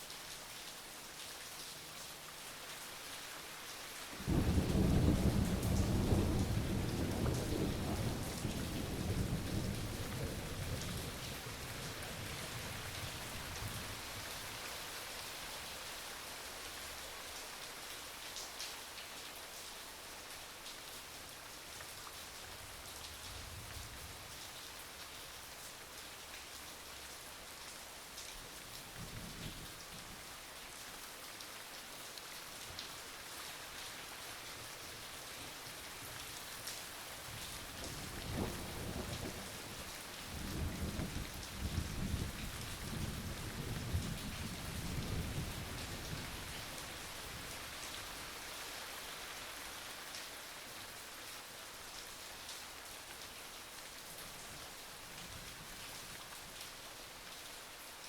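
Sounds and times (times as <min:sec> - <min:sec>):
steady rain falling: 0:00.0 - 0:58.0
thunder rumbling: 0:38.0 - 0:42.3.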